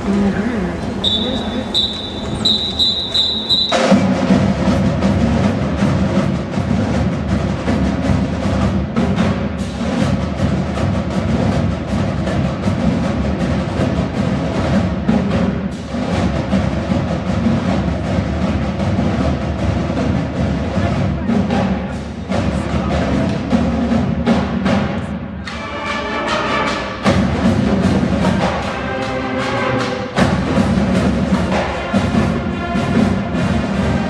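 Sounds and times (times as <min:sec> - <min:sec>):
drums and percussion: 0:00.0 - 0:34.0
marching band playing: 0:00.0 - 0:34.0
high whistle blasts: 0:01.0 - 0:04.0.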